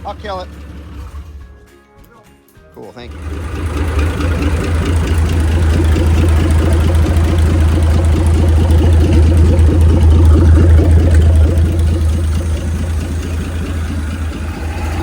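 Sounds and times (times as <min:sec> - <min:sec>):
boat engine running: 0:03.1 - 0:15.0.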